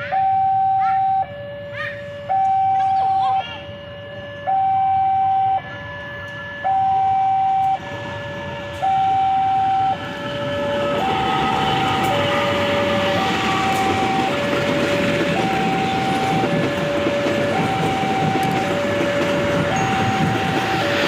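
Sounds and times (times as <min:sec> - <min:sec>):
two-tone warning alarm: 0:00.0 - 0:21.0
train approaching rumble: 0:05.4 - 0:21.0.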